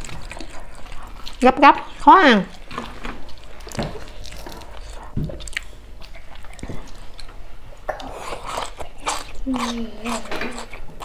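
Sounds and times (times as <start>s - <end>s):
chewing: 0.0s - 11.0s
biting food: 2.5s - 11.0s.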